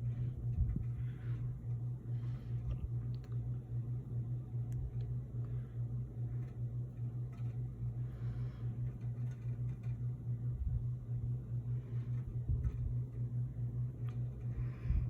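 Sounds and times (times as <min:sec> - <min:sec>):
soft low bumps: 0:00.0 - 0:01.4
steady low hum: 0:00.0 - 0:15.0.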